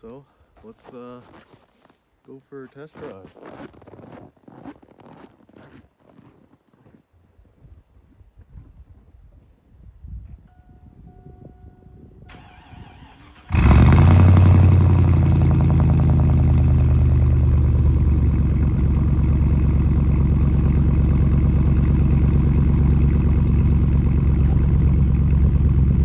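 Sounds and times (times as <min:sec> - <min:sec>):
pickup engine cranking: 0:12.3 - 0:26.0
pickup engine idling: 0:12.4 - 0:26.0.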